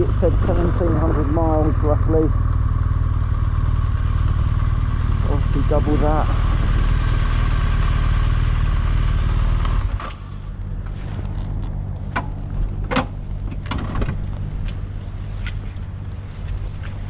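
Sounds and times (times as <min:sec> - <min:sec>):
motorcycle engine running: 0:00.0 - 0:13.5
sharp clicks and knocks: 0:11.7 - 0:14.8.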